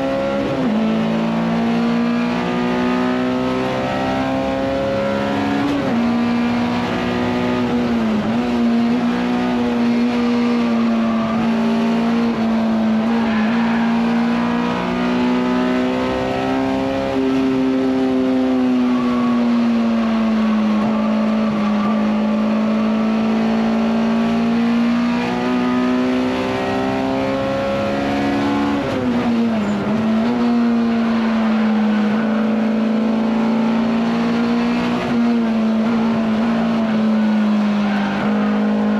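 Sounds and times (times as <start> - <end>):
race car engine at high revs: 0.0 - 38.9.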